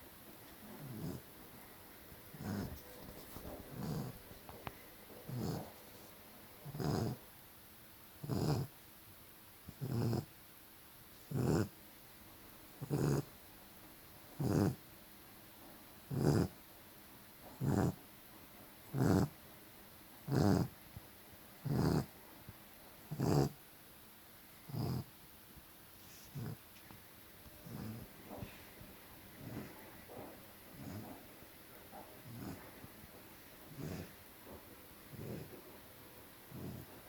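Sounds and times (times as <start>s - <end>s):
puppy snoring: 0.6s - 1.4s, 2.2s - 6.0s, 6.6s - 7.2s, 8.2s - 8.8s, 9.6s - 10.4s, 11.2s - 11.8s, 12.8s - 13.3s, 14.4s - 14.8s, 16.1s - 16.6s, 17.5s - 18.0s, 18.8s - 19.4s, 20.2s - 20.8s, 21.6s - 22.2s, 23.0s - 23.6s, 24.6s - 25.2s, 26.0s - 26.7s, 27.5s - 35.7s, 36.5s - 37.0s.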